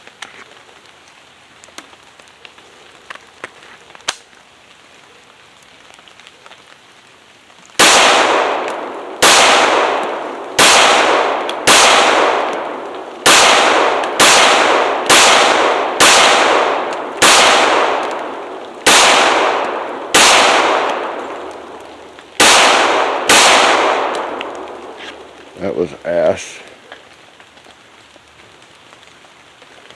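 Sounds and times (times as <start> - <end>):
pistol shots echoing: 7.8 - 21.8, 22.4 - 25.0.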